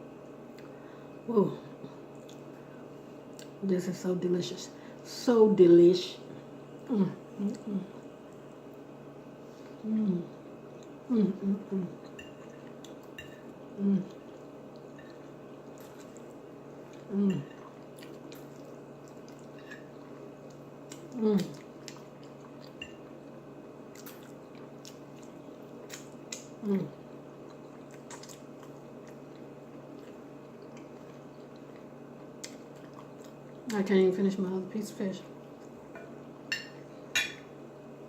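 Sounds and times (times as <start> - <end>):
close chewing with mouth clicks: 2.1 - 2.5, 14.1 - 23.2, 23.9 - 33.8
person humming mm: 6.9 - 8.0, 9.8 - 10.4, 11.0 - 12.0, 13.7 - 14.2, 17.1 - 17.5.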